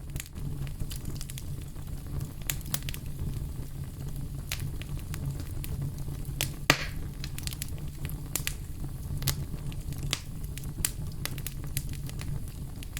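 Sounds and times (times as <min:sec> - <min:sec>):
wood fire crackling and popping: 0:00.0 - 0:12.9.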